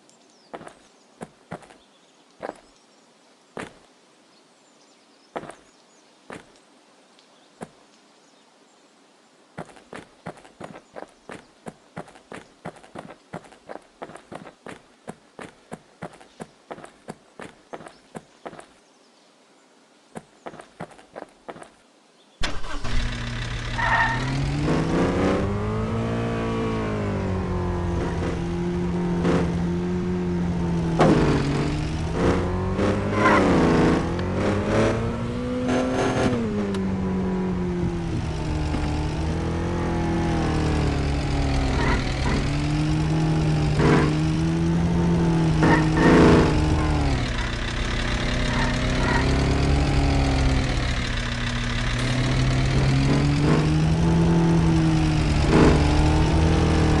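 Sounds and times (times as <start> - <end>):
truck engine revving: 22.4 - 57.0.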